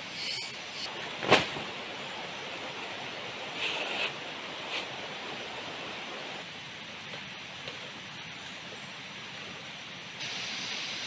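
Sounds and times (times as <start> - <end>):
sharp hiss: 0.0 - 0.9, 10.2 - 11.0.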